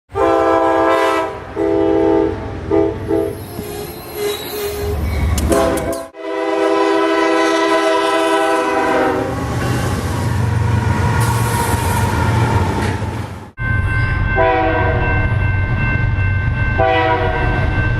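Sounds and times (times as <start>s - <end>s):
locomotive horn blasts: 0.1s - 3.4s, 5.4s - 9.5s, 14.4s - 15.1s, 16.8s - 17.6s.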